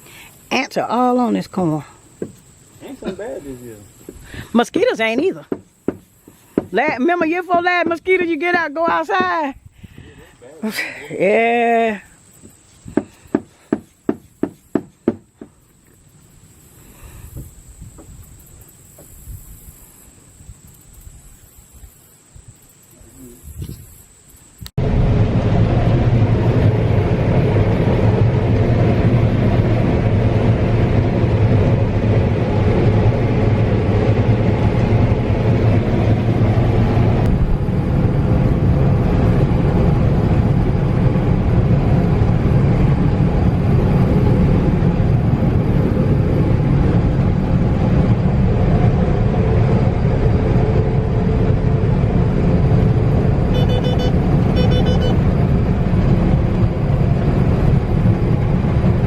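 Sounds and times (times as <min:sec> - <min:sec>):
farm machinery droning: 0:24.8 - 0:59.0
quick high beeps: 0:53.5 - 0:55.2.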